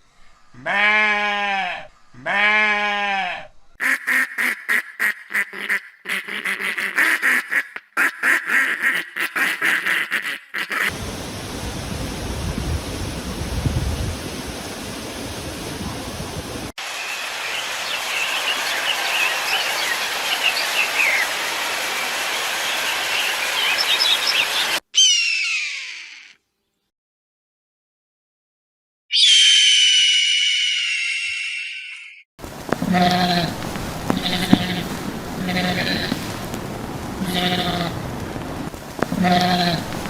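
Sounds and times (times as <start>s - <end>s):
duck quacking: 3.8s - 10.9s, 32.9s - 36.3s
steady rushing noise: 10.9s - 24.8s, 32.4s - 40.0s
bird chirps: 22.9s - 26.9s, 29.1s - 32.2s.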